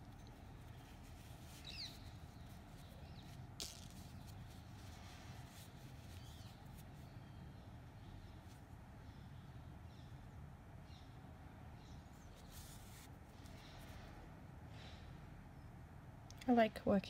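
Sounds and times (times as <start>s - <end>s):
birds chirping: 0.0s - 4.5s
handling rustles: 0.0s - 7.1s
low steady hum: 0.0s - 17.0s.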